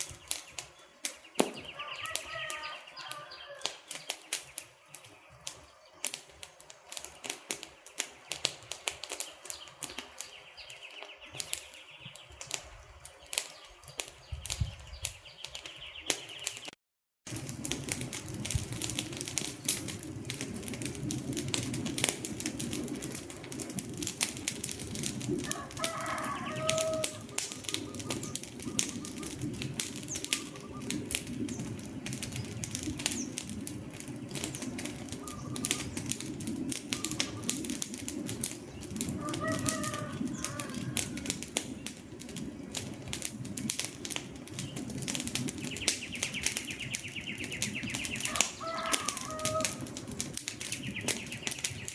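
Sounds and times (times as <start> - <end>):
wood fire crackling and popping: 0.0 - 51.9
short bird calls: 0.2 - 5.2, 30.1 - 31.0, 35.2 - 36.1, 36.9 - 37.6.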